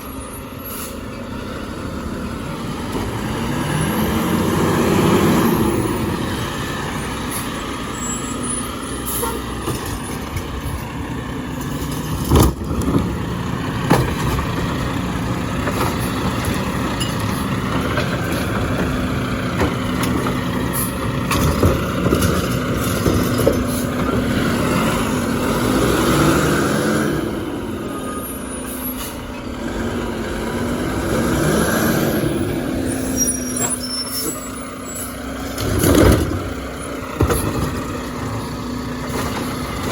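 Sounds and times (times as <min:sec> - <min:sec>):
garbage truck running: 0:00.0 - 0:39.9.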